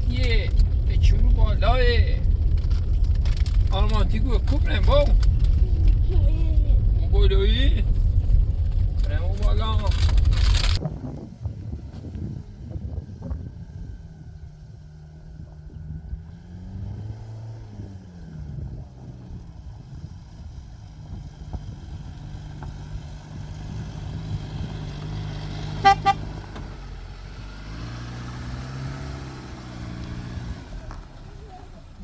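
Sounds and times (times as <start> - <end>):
vehicle engine running: 0.0 - 32.0
car horn toots: 25.8 - 26.5.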